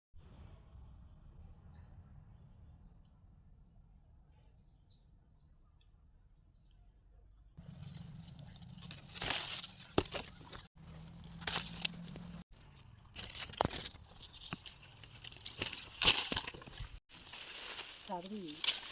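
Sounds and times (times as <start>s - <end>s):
leaves and branches rustling: 7.6s - 18.9s.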